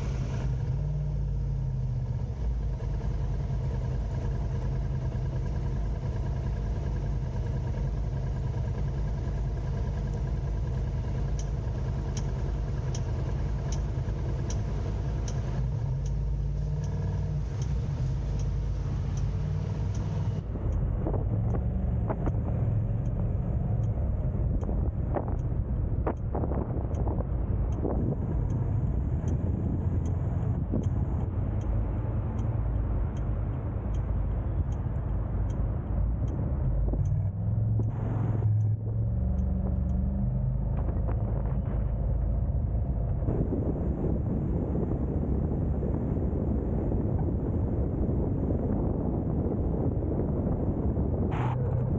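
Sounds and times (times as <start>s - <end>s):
car engine and road rumble: 0.0s - 51.9s
faint ticking: 2.6s - 42.9s.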